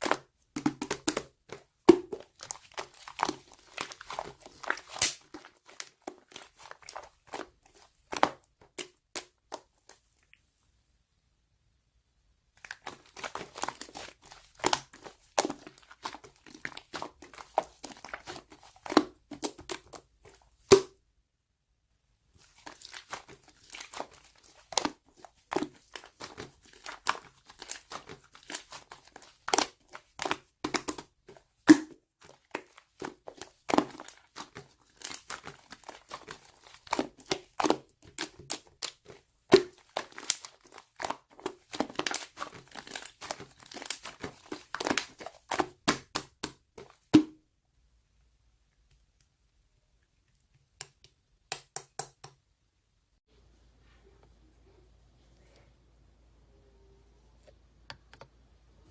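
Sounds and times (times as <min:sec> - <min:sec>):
slime squished by hand: 0:00.0 - 0:10.0, 0:12.6 - 0:21.0, 0:22.4 - 0:47.3.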